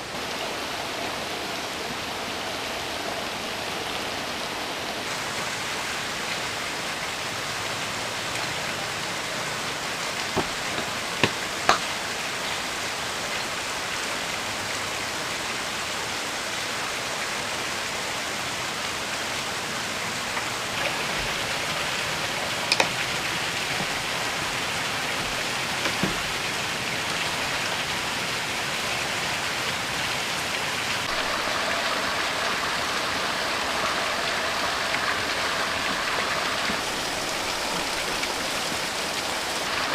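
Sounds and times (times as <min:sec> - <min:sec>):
heavy rain falling: 0:00.0 - 0:39.9
sharp clicks or taps: 0:10.4 - 0:11.9, 0:22.7 - 0:23.0.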